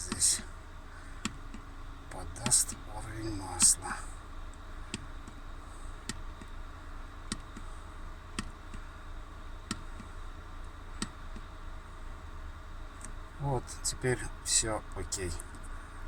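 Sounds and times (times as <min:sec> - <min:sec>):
truck cab hum: 0:00.0 - 0:16.0
light sharp clicks: 0:02.4 - 0:02.9, 0:07.3 - 0:07.7, 0:09.6 - 0:10.1, 0:13.0 - 0:13.2.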